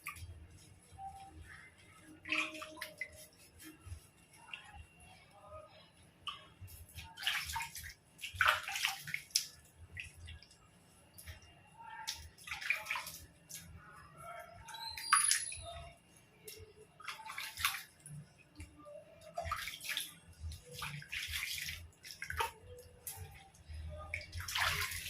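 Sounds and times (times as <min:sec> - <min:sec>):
water splashing and pouring: 0:07.0 - 0:10.4, 0:12.1 - 0:13.2, 0:17.0 - 0:17.9, 0:19.4 - 0:23.4, 0:24.1 - 0:25.0
short high-pitched squeak: 0:14.7 - 0:15.8.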